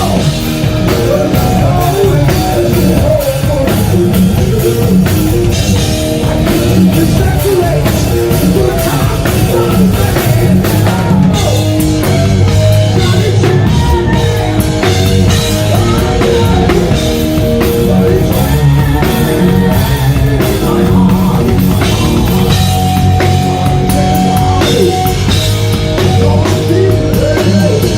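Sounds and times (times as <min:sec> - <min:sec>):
hard rock band playing: 0:00.0 - 0:27.9
pitch-bending lead guitar or voice: 0:00.0 - 0:27.9.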